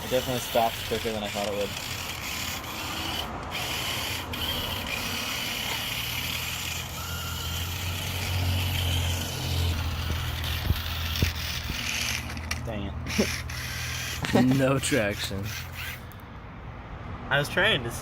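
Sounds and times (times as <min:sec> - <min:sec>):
toy car electric motor whining: 0:00.0 - 0:16.2.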